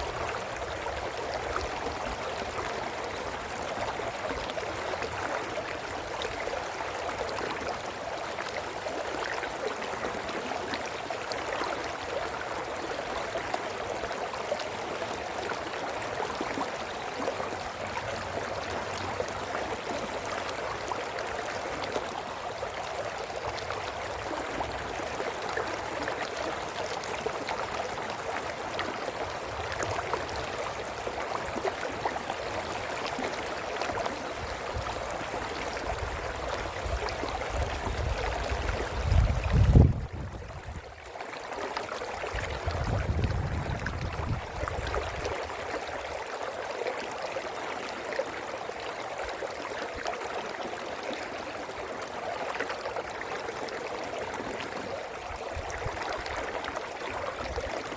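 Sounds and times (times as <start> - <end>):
brook water running over stones: 0.0 - 57.9.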